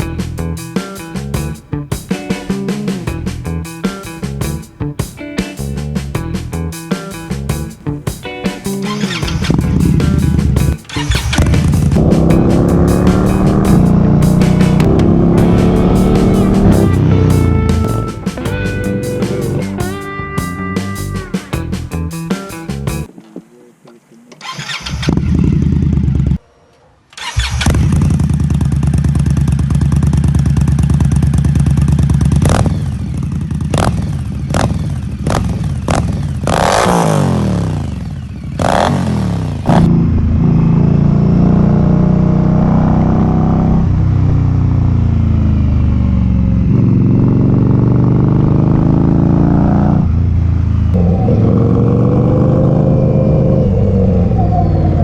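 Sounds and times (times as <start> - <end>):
motorcycle engine revving: 8.7 - 22.0, 27.2 - 55.0
motorcycle shifting through gears: 8.8 - 20.0, 27.2 - 55.0
motorcycle engine idling: 9.1 - 21.9, 27.3 - 36.6, 43.8 - 49.0.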